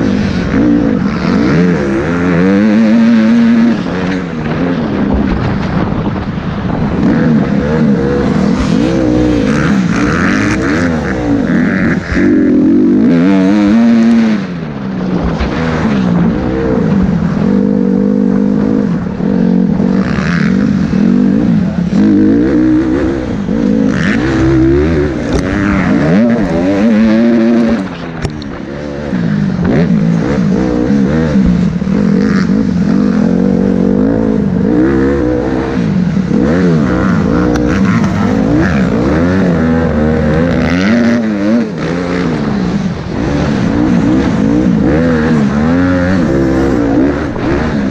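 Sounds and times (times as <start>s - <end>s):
motocross bike engine revving: 0.0s - 47.9s.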